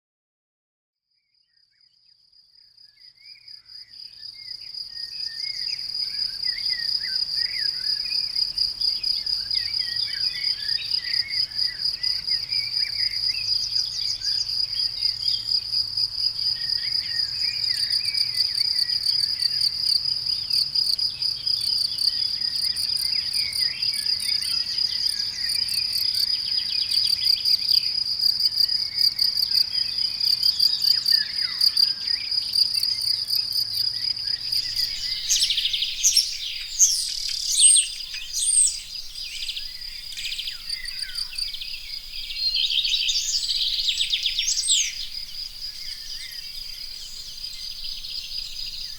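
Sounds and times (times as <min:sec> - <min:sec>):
crickets trilling: 0:04.8 - 0:48.9
birds chirping and singing: 0:34.3 - 0:48.9.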